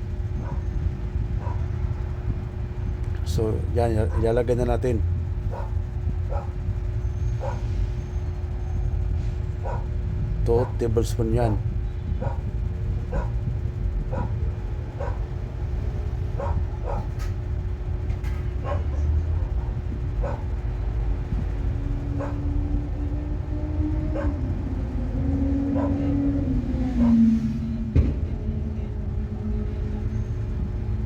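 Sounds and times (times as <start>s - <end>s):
steady low hum: 0.0s - 31.0s
dog barking: 0.3s - 1.7s, 4.0s - 4.3s, 5.4s - 6.6s, 7.3s - 7.7s, 9.6s - 10.0s, 10.6s - 10.9s, 12.2s - 15.4s, 16.3s - 17.3s, 18.6s - 20.6s, 22.0s - 22.5s, 24.1s - 24.5s, 25.7s - 26.2s, 27.0s - 27.2s.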